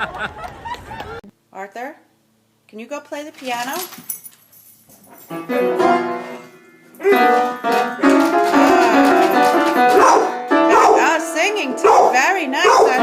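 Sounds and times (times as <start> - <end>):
piano chords ringing: 5.2 - 13.0.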